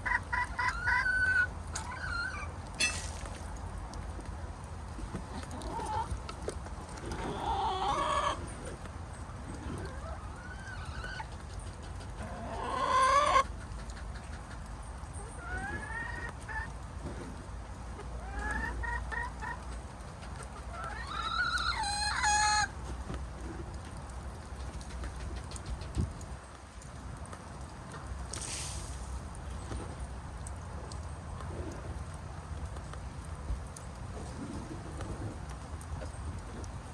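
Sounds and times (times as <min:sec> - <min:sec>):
chickens clucking and calling: 0:00.0 - 0:02.8, 0:04.9 - 0:23.7, 0:24.4 - 0:26.3.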